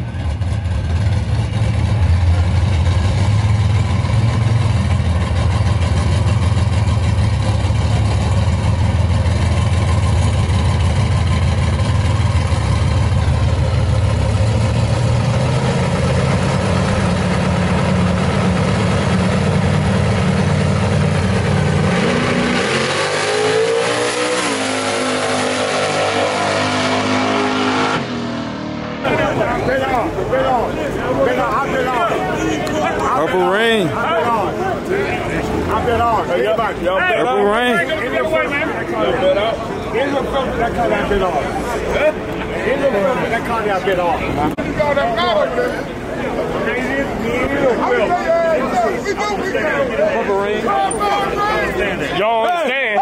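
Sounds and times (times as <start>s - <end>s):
drag car engine revving: 0.0s - 45.3s
car accelerating away: 0.1s - 48.9s.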